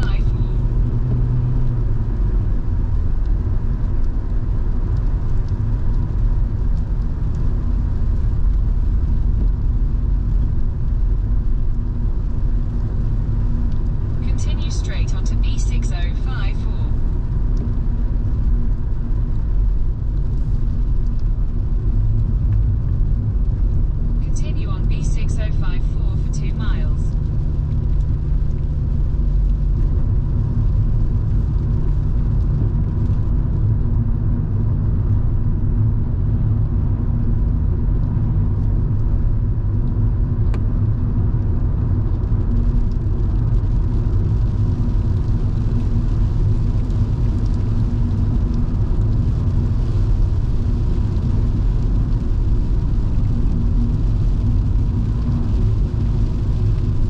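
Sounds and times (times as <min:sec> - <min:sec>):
car engine and road rumble: 0:00.0 - 0:57.0
faint steady hum: 0:12.9 - 0:21.3, 0:24.1 - 0:32.5.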